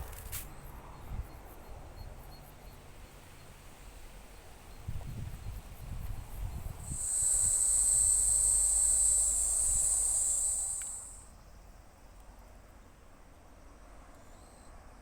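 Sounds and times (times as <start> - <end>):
insect buzzing: 4.7 - 11.4.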